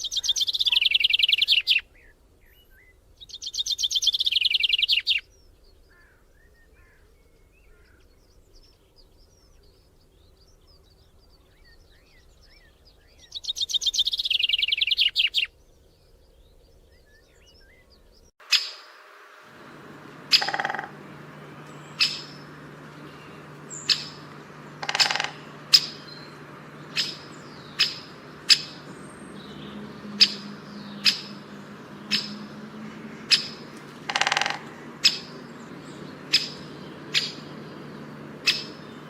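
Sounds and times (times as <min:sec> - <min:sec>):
songbird whistle-like calls: 0:00.0 - 0:39.0
harsh buzzy bird call: 0:18.4 - 0:39.0
steady low hum: 0:18.9 - 0:39.0.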